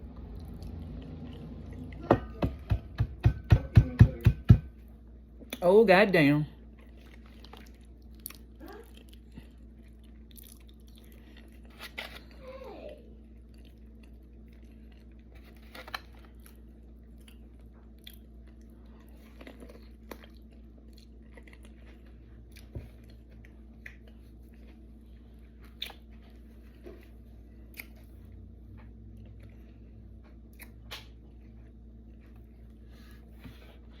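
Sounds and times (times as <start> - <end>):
steady low hum: 0.0 - 34.0
chewing: 0.1 - 2.0, 6.7 - 12.4, 13.2 - 32.8.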